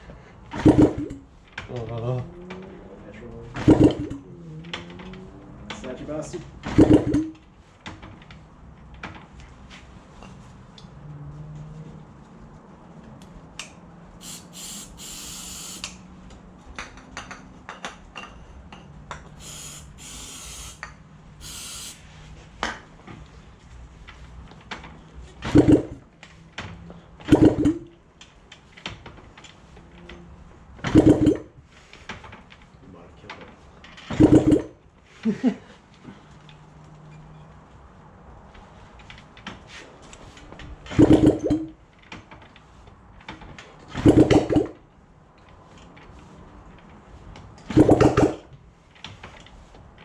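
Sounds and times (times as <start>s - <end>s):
aerosol spray hissing: 14.2s - 15.9s, 19.4s - 20.8s, 21.4s - 22.1s.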